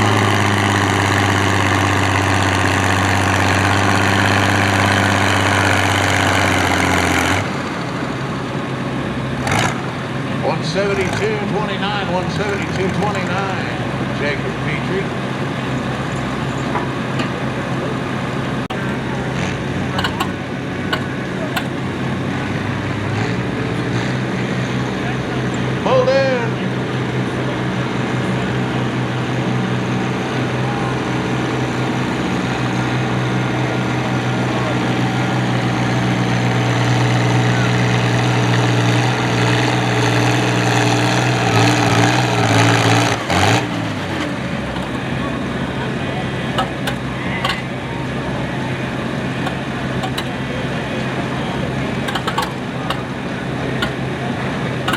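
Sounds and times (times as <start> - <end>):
tractor engine running: 0.0 - 24.9, 39.8 - 54.9
knocks: 20.0 - 22.1, 43.0 - 46.0, 46.6 - 47.8, 49.4 - 50.4, 52.1 - 54.2.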